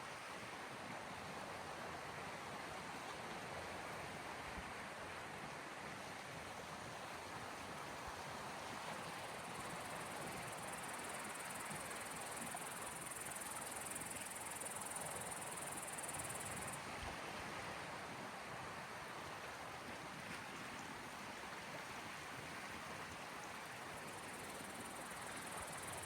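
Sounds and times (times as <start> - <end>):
small waves lapping on shore: 0.0 - 26.0
high-pitched insect call: 9.6 - 16.8.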